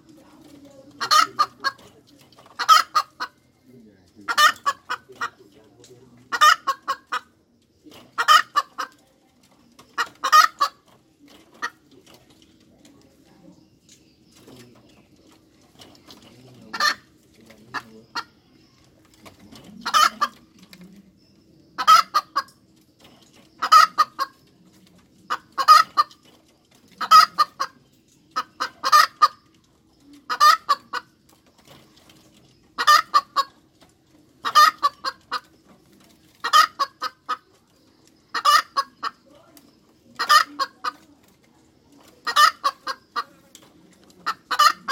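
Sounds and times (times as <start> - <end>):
hen cackling: 0.9 - 3.4, 4.2 - 5.5, 6.3 - 7.4, 8.1 - 9.0, 9.8 - 10.9, 16.7 - 17.1, 19.7 - 20.6, 21.8 - 22.6, 23.6 - 24.4, 25.3 - 26.2, 27.0 - 27.8, 28.4 - 29.5, 30.2 - 31.1, 32.8 - 33.6, 34.4 - 35.5, 36.4 - 37.5, 38.3 - 39.2, 40.1 - 41.0, 42.0 - 43.4, 44.2 - 44.9.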